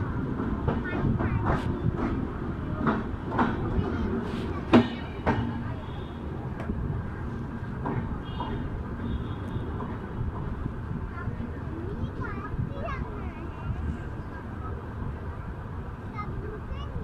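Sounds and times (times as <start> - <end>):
train rumble: 0.0 - 17.0
train wheels clacking over rail joint: 0.2 - 9.1.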